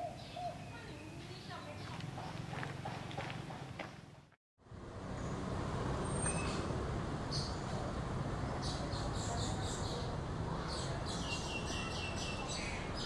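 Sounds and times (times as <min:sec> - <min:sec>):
birds chirping: 0:00.0 - 0:04.0, 0:08.5 - 0:13.0.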